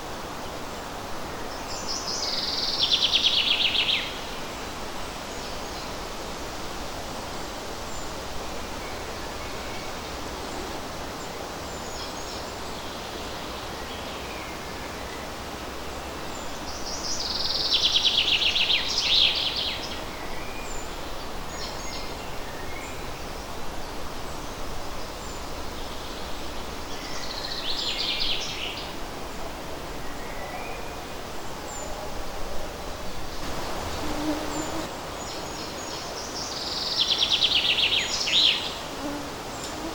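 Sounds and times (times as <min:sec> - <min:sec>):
breeze rustling leaves: 0:00.0 - 0:39.9.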